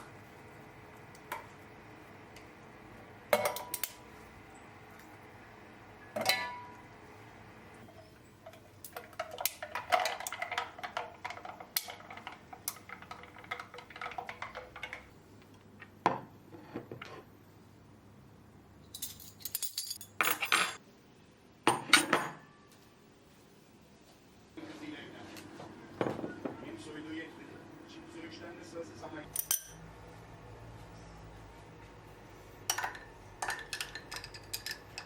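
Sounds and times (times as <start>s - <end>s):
dishes and cutlery clattering: 7.9s - 15.1s, 19.0s - 20.8s, 32.7s - 35.0s.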